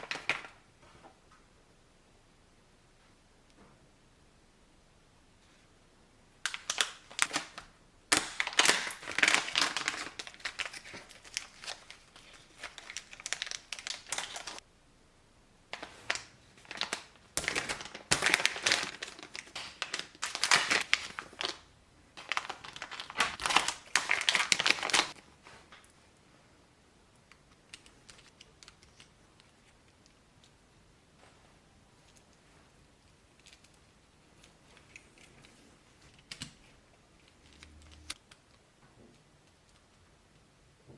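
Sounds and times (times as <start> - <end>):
plastic packaging crinkling: 6.4 - 14.6, 15.7 - 25.2.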